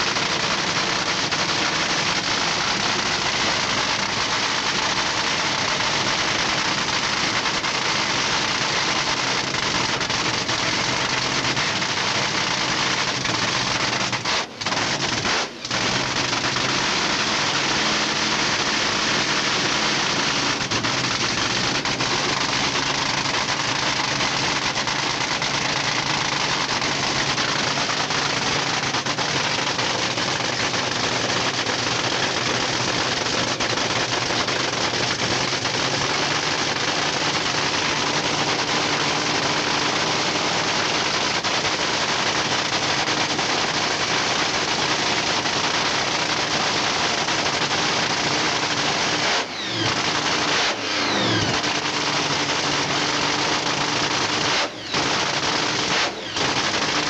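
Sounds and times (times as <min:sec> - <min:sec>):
race car engine idling: 0:00.0 - 0:57.0.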